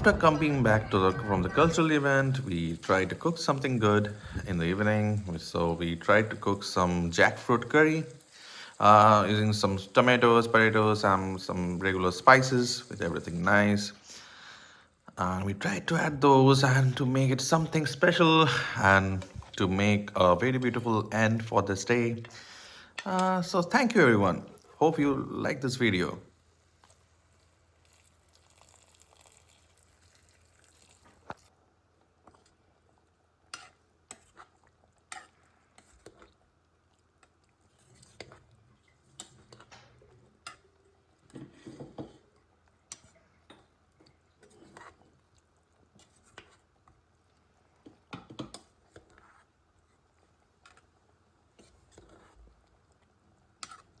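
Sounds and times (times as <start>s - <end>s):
stirring: 0.0s - 13.5s, 16.8s - 54.0s.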